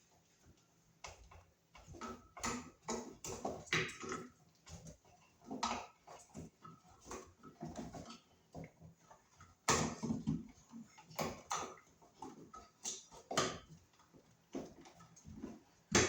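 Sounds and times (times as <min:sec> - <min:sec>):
cable scraping and rustling in wall: 0:00.0 - 0:16.0.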